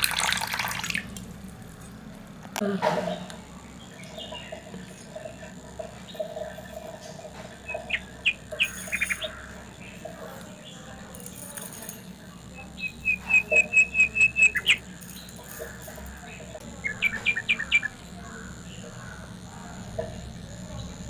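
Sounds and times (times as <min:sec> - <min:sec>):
bird chirping: 0:07.6 - 0:10.8, 0:12.6 - 0:18.1.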